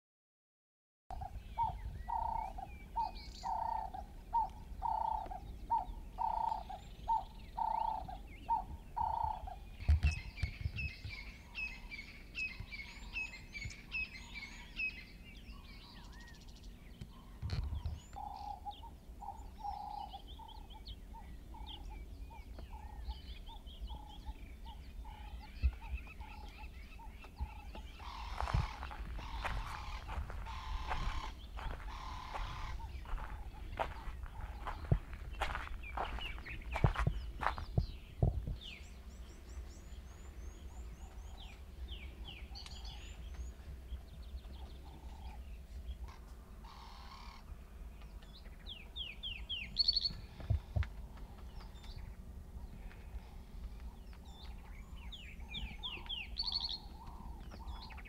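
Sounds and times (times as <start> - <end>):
low bird call: 1.1 - 58.0
steady low rumble: 1.1 - 58.0
bird chirps and whistles: 55.6 - 56.9.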